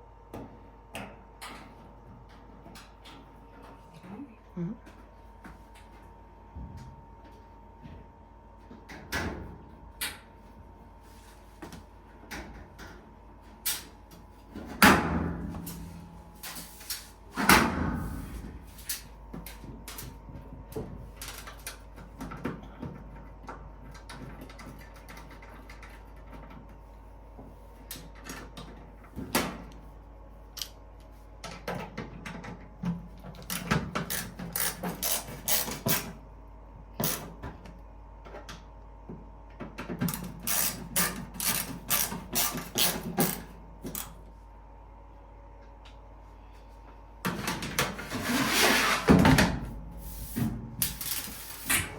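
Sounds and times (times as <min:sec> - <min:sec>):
clicks and knocks of repair work: 0:18.9 - 0:26.8, 0:31.4 - 0:36.2.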